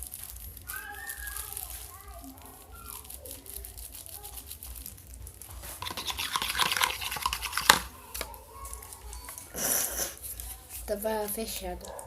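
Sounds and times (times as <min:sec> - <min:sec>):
hands scraping plastic bottle: 0:05.6 - 0:08.3.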